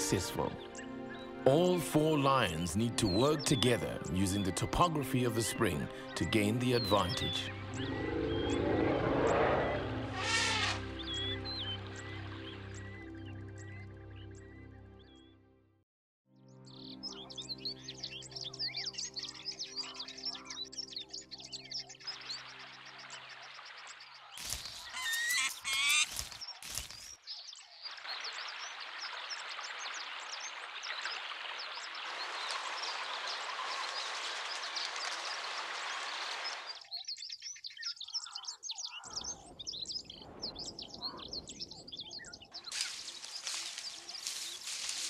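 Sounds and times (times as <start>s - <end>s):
birds chirping: 0.0s - 15.4s, 16.6s - 45.0s
background music: 0.0s - 22.5s.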